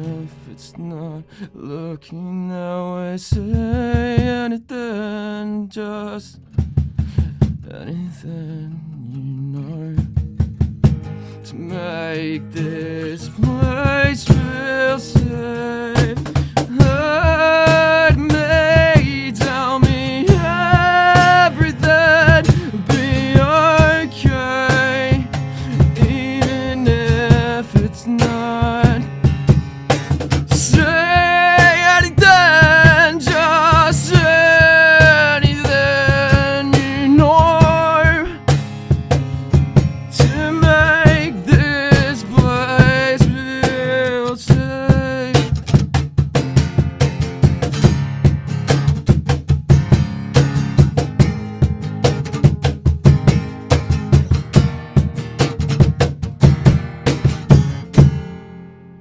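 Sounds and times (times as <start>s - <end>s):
person singing: 0.0s - 6.4s, 11.4s - 29.4s, 30.4s - 38.7s, 40.1s - 45.6s
strummed acoustic guitar: 0.0s - 59.0s
drums: 3.3s - 4.6s, 6.4s - 7.9s, 9.8s - 11.3s, 12.5s - 58.4s.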